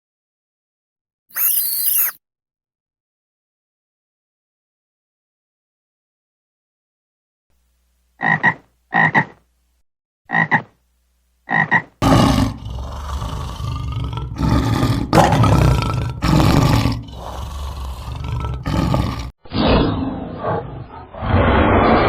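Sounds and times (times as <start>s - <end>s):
large animal roaring: 12.0s - 22.0s.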